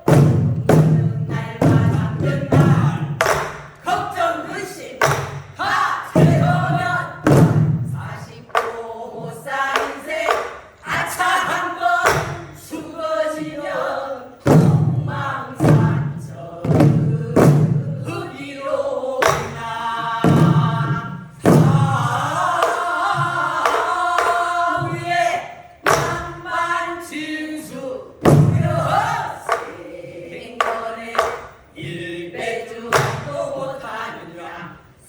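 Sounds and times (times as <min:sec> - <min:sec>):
barrel drum strokes: 0:00.0 - 0:11.2, 0:14.4 - 0:18.4, 0:19.2 - 0:26.6, 0:28.2 - 0:32.1
group singing in unison: 0:00.0 - 0:35.0.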